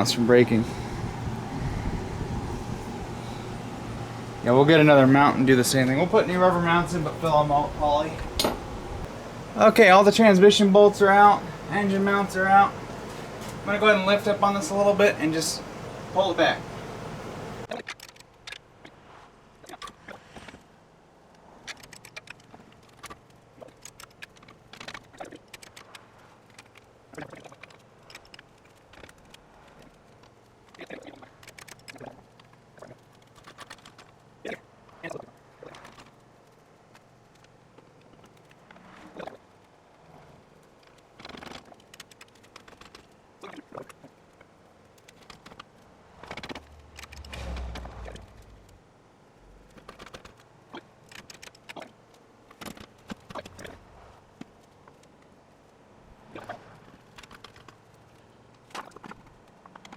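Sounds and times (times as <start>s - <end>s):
low rumble: 0.0s - 4.6s, 46.6s - 49.6s
metallic clicks and rattles: 21.6s - 34.3s, 40.6s - 48.8s
engine hoist chain clicks and creaks: 43.7s - 48.8s
metal scrapes: 46.6s - 48.8s.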